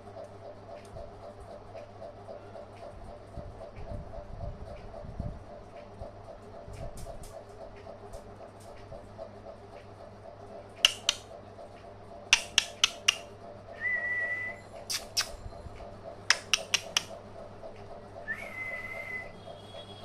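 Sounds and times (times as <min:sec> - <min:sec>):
sharp clicks: 0:10.8 - 0:11.4, 0:12.3 - 0:13.3, 0:14.9 - 0:15.4, 0:16.3 - 0:17.2
person whistling: 0:13.8 - 0:14.7, 0:18.3 - 0:19.4.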